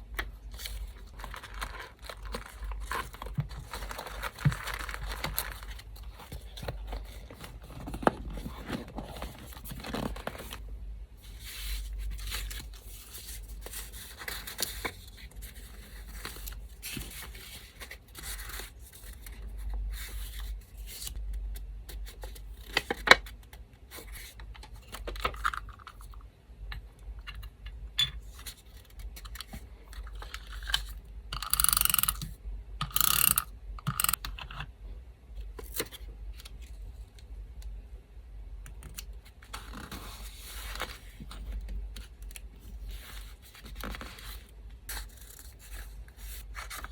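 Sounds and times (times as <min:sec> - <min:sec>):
electric fan humming: 0:31.3 - 0:34.2.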